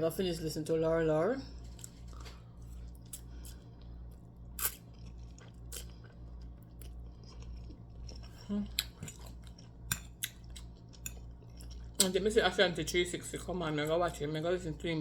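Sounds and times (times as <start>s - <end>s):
steady low hum: 0.0s - 15.0s
person chewing food: 1.5s - 12.2s.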